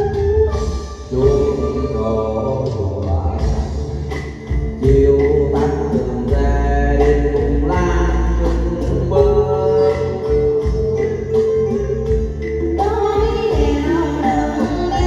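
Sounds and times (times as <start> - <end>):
instrumental backing music: 0.0 - 15.0
person singing long notes: 1.1 - 3.9, 4.7 - 15.0.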